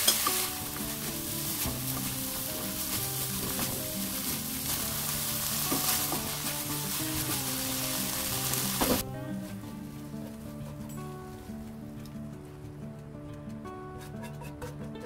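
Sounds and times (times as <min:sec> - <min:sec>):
food sizzling in a wok: 0:00.0 - 0:09.0
spatula scraping a wok: 0:00.0 - 0:09.0, 0:13.9 - 0:15.0
background music: 0:00.0 - 0:15.0.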